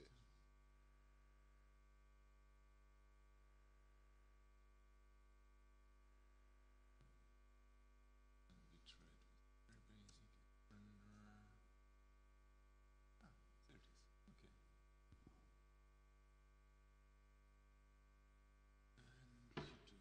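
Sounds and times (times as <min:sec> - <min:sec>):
electrical mains hum: 0:00.0 - 0:20.0
faint distant voices: 0:08.5 - 0:11.6, 0:19.0 - 0:20.0.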